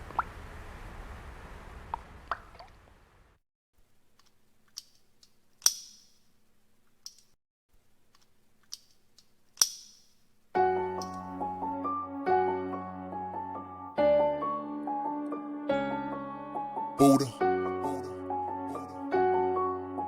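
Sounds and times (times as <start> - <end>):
sharp single clicks: 5.6 - 6.2, 8.1 - 10.1
piano music: 10.6 - 20.0.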